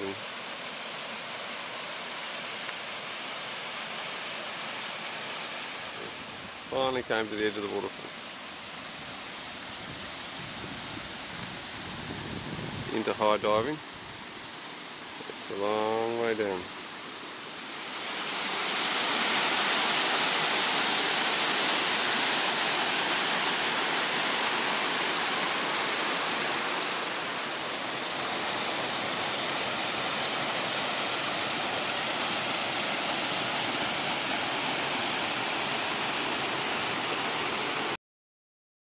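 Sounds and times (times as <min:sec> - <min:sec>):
waterfall roaring: 0:15.2 - 0:38.0.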